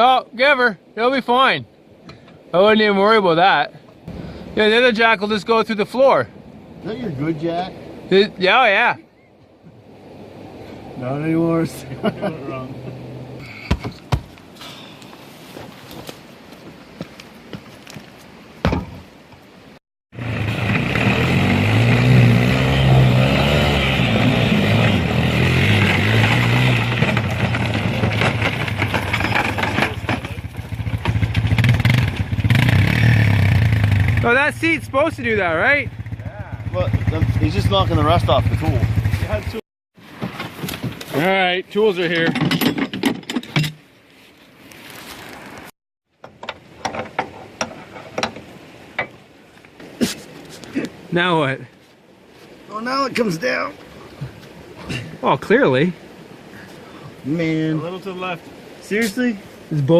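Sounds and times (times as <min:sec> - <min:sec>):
vehicle engine running: 0:20.2 - 0:39.6
clicks and clatter: 0:25.8 - 0:32.3
hand tools clinking: 0:42.1 - 0:43.8.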